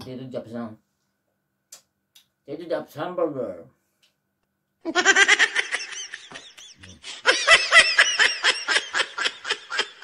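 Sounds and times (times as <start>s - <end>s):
high-pitched laughter: 4.9s - 10.0s.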